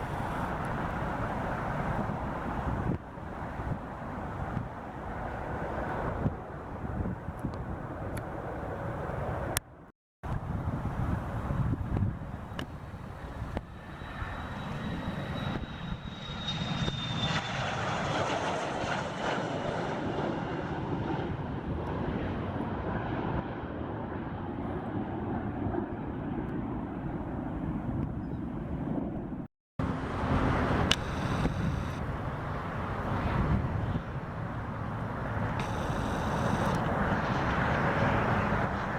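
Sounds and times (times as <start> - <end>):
high engine whine: 0.0 - 3.0, 10.3 - 18.9, 29.8 - 38.9
airplane engines rushing: 0.0 - 38.9.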